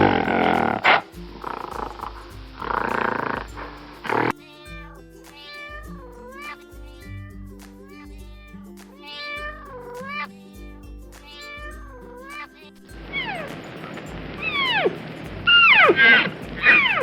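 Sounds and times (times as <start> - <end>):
background music with beat: 0.0 - 17.0
cat meowing: 4.1 - 10.3, 11.3 - 13.5, 14.4 - 17.0.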